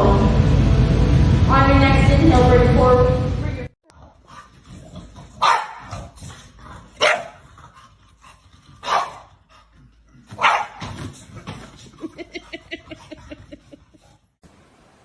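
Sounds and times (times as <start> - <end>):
dog barking: 5.4 - 6.2, 7.0 - 7.4, 8.8 - 9.3, 10.3 - 11.0.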